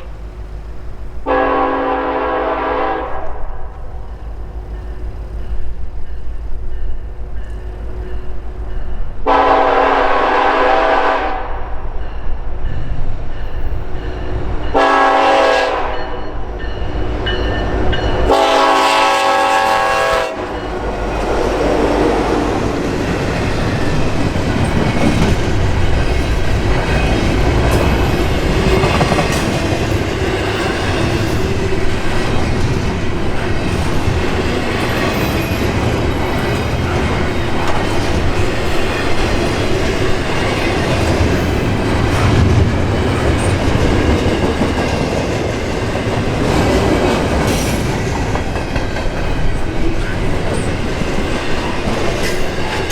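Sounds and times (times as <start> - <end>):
train rumbling past: 0.0 - 52.9
locomotive air horn: 1.2 - 3.7, 9.2 - 11.6, 14.7 - 16.2, 18.3 - 20.6
wheels clattering over rail joints: 20.5 - 52.9.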